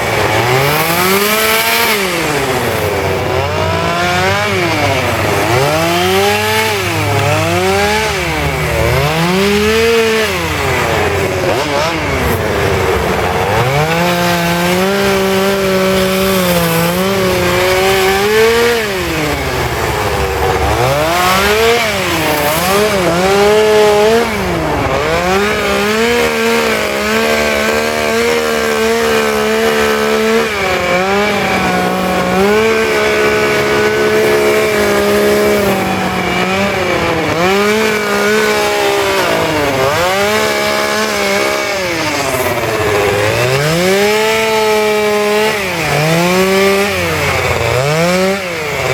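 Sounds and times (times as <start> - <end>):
chainsaw revving: 0.0 - 48.9.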